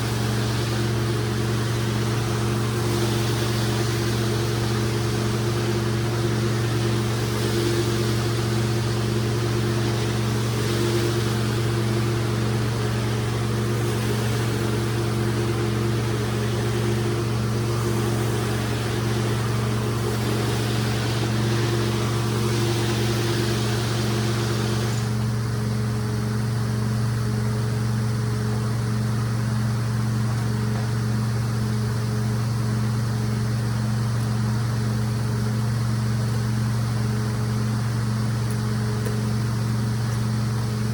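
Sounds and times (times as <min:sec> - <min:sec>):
rushing hiss of extraction: 0:00.0 - 0:25.2
carpet cleaning machine humming: 0:00.0 - 0:35.9.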